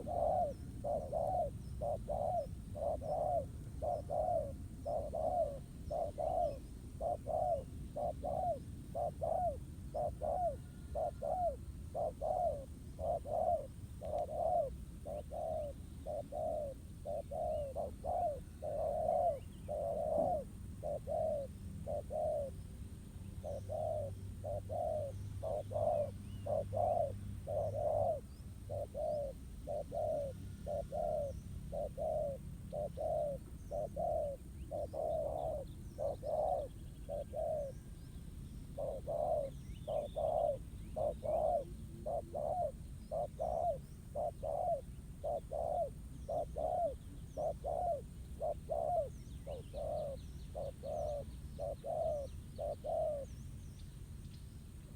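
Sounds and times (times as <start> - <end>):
doves cooing: 0.0 - 22.6, 23.4 - 38.0, 38.8 - 53.4
faint small bird chirps: 0.0 - 54.9.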